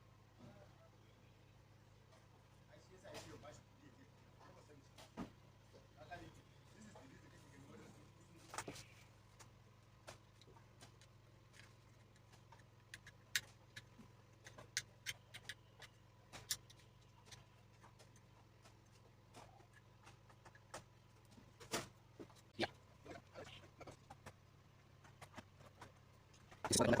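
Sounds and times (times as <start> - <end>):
faint steady hum: 0.0 - 27.0
light clicks and taps of parts: 8.5 - 22.5.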